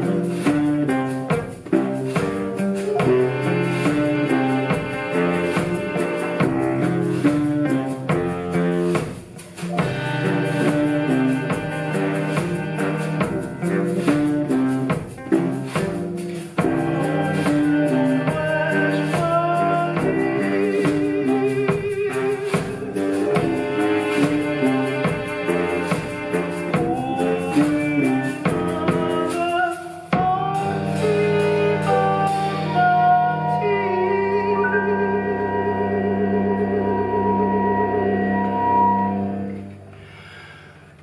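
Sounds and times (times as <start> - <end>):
live ensemble music with drums: 0.0 - 40.6
sustained held notes with vibrato: 30.7 - 40.6.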